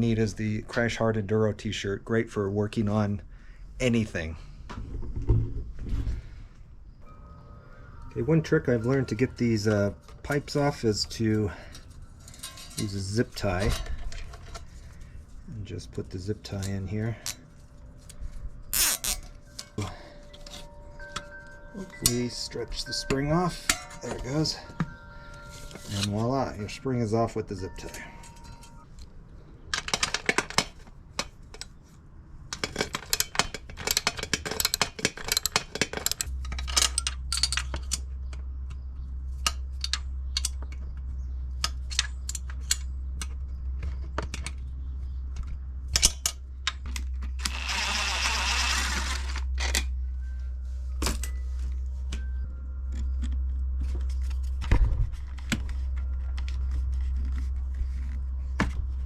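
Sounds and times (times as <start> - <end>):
low steady hum: 0.0 - 59.0
metal clinks and rattles: 8.4 - 15.3, 32.5 - 58.3.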